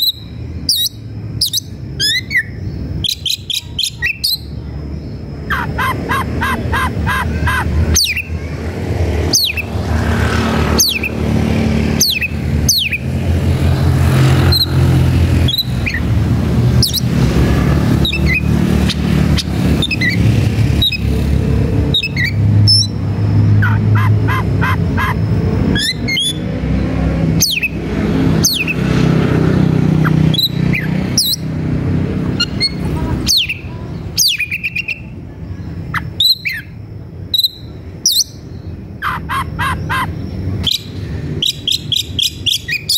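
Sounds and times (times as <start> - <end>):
bird singing whistled notes: 0.0 - 8.4, 32.4 - 35.1, 35.9 - 42.9.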